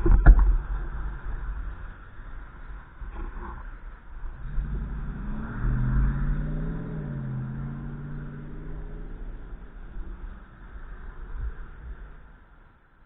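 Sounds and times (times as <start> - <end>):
vehicle driving past: 4.0 - 12.6.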